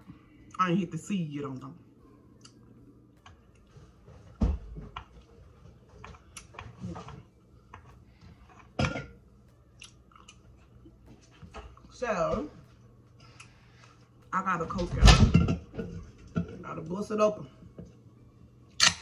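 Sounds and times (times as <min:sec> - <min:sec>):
chewing crunchy taco: 0:09.6 - 0:11.3.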